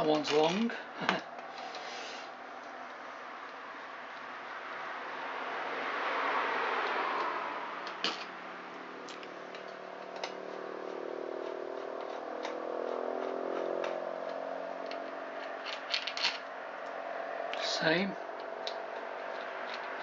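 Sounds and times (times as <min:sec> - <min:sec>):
low hum: 0:07.3 - 0:20.0.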